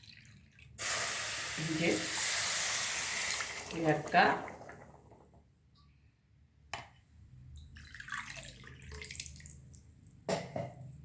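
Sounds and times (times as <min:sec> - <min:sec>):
water pouring and splashing: 0:00.0 - 0:05.4, 0:07.7 - 0:09.8.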